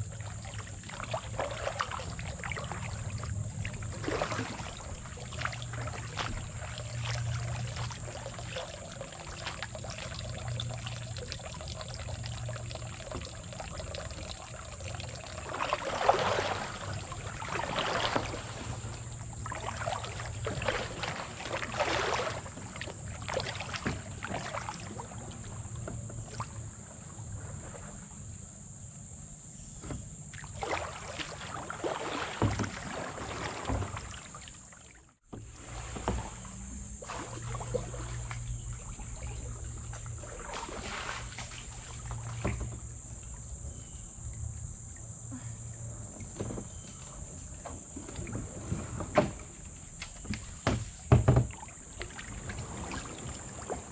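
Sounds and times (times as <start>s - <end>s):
kayak paddles splashing water: 0.0s - 28.4s, 30.3s - 53.9s
insects chirring: 0.0s - 53.9s
water dripping: 0.4s - 17.3s.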